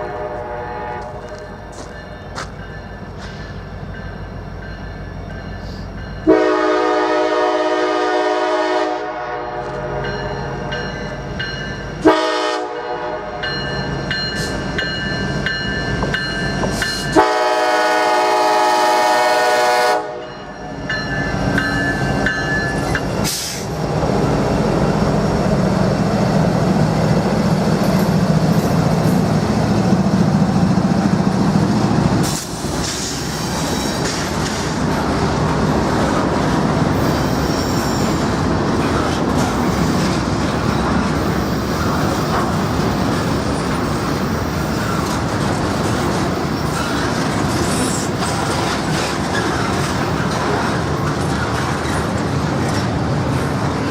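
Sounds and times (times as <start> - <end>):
train air horn: 0.0 - 1.4, 6.2 - 10.1, 12.0 - 13.4, 17.1 - 20.3
train rumble and wheel clatter: 0.0 - 53.9.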